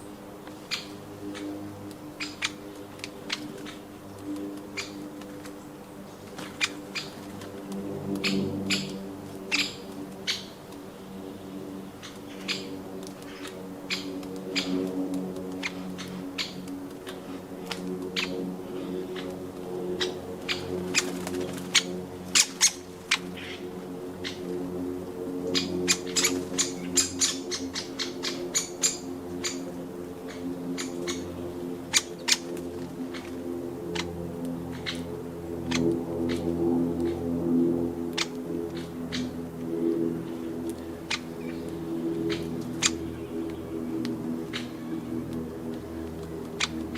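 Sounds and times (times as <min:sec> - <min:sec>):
drone of held musical notes: 0:00.0 - 0:46.9
steady low hum: 0:00.0 - 0:46.9
birds giving sharp calls: 0:00.6 - 0:03.9, 0:04.6 - 0:05.1, 0:06.2 - 0:07.4, 0:08.1 - 0:10.6, 0:11.9 - 0:14.9, 0:15.5 - 0:17.2, 0:18.1 - 0:24.5, 0:25.5 - 0:37.3, 0:40.3 - 0:45.0.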